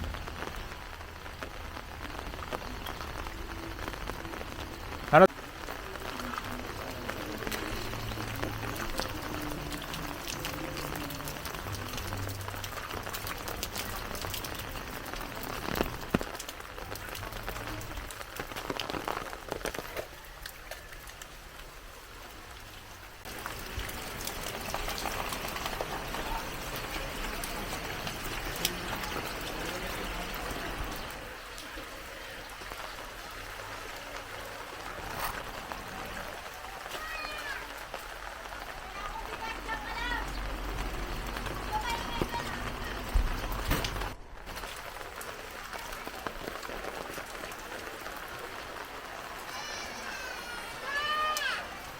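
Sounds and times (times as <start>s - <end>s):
heavy rain falling: 0.0s - 51.9s.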